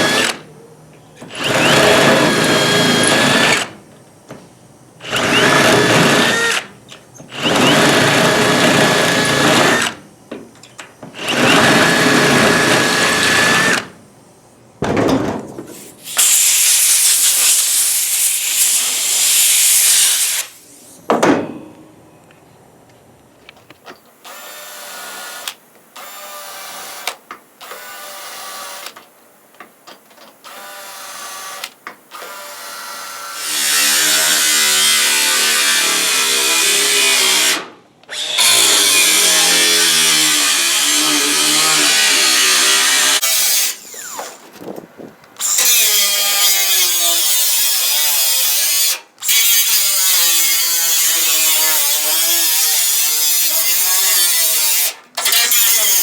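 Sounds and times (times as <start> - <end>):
electric drill into sheet metal: 0.0 - 0.4, 1.3 - 3.8, 5.0 - 10.0, 11.2 - 14.0, 16.1 - 20.6, 30.5 - 44.4, 45.4 - 56.0.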